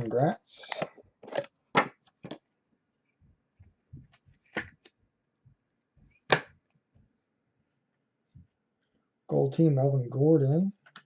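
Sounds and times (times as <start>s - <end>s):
cards slapping: 4.1s - 4.9s.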